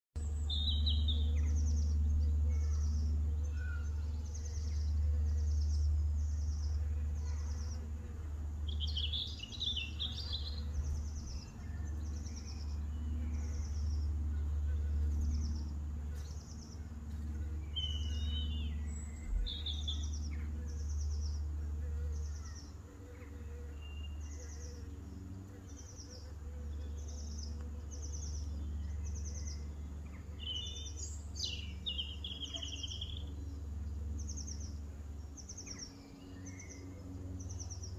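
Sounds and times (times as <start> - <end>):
steady low rumble: 0.2 - 23.2
birds chirping: 0.2 - 37.9.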